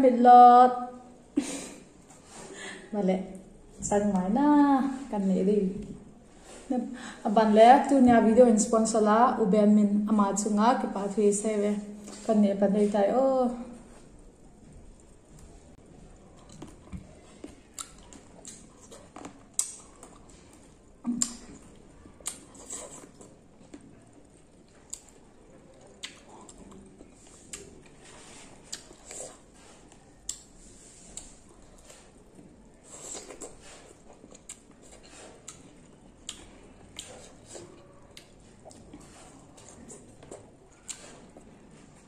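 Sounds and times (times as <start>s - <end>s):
grapes being chewed: 13.7s - 42.0s.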